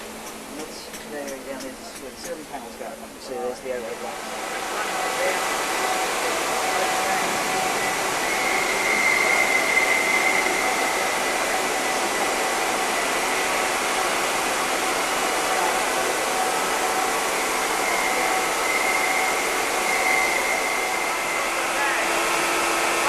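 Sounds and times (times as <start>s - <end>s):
constant hiss: 0.0s - 18.3s
faint high whine: 0.0s - 23.0s.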